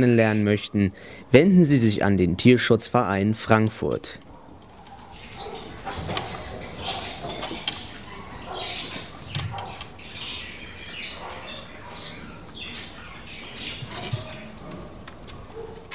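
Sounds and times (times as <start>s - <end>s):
birds squawking and chirping: 4.2s - 15.9s.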